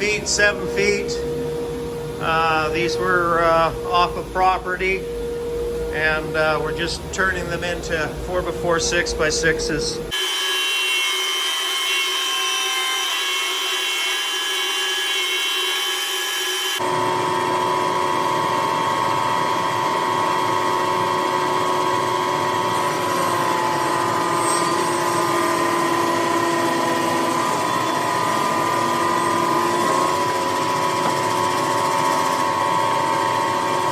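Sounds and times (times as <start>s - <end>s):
strong steady hum: 0.0s - 10.2s
bandsaw whining: 0.0s - 33.9s.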